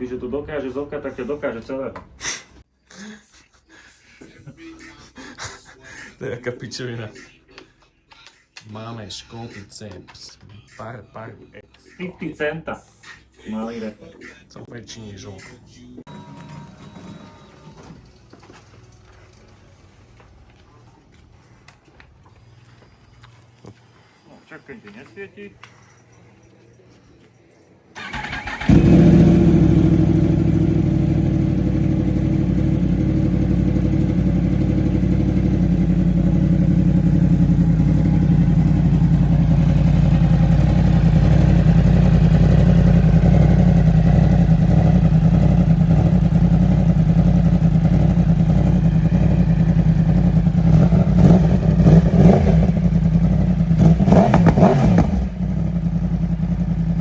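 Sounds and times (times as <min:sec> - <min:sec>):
motorcycle engine idling: 0:28.0 - 0:57.0
motorcycle throttle blips: 0:28.0 - 0:57.0.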